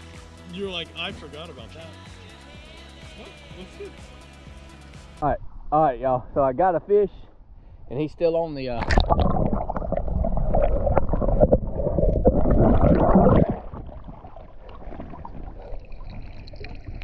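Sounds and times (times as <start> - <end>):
water splashing and sloshing: 8.8 - 17.0.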